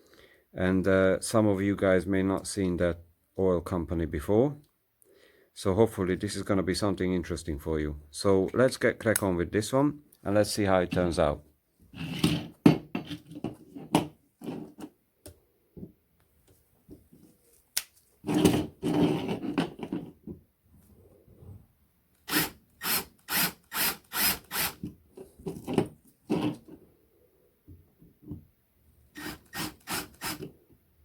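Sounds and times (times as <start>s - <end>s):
tool scraping: 18.2s - 20.1s, 22.3s - 26.8s.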